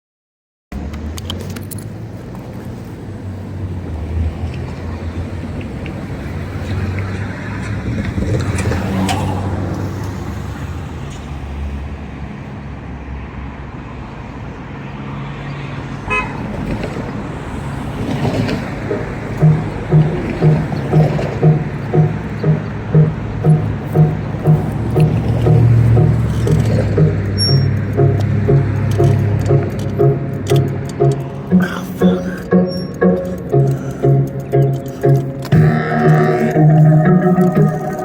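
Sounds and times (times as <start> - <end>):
vehicle engine and road noise: 0.7 - 38.0
sharp clicks: 18.9 - 35.6.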